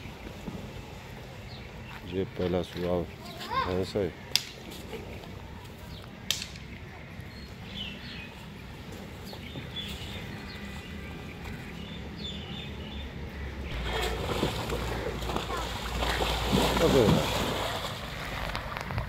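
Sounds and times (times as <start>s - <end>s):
low outdoor rumble: 4.1s - 19.0s.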